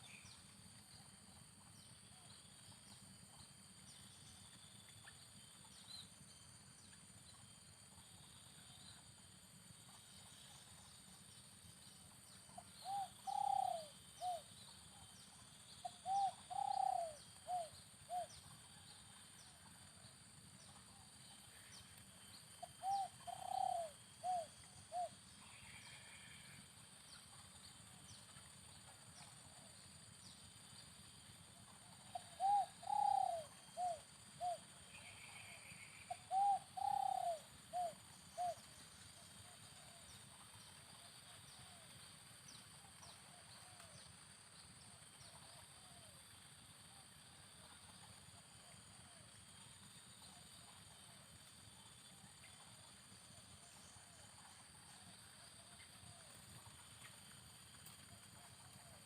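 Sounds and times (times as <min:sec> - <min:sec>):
dove cooing: 0:12.6 - 0:14.5, 0:15.8 - 0:18.9, 0:22.6 - 0:26.4, 0:31.6 - 0:38.7.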